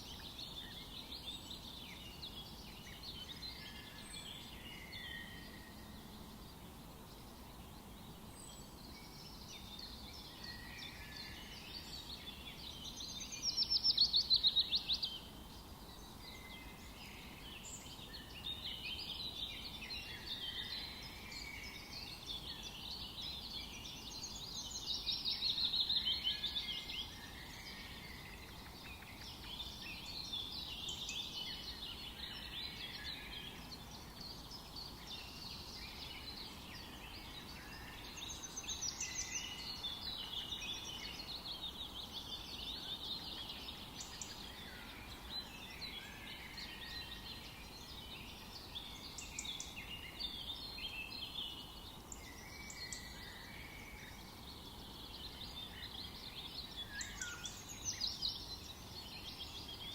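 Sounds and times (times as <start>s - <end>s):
faint steady hiss: 0.0s - 59.9s
songbirds singing: 0.0s - 59.9s.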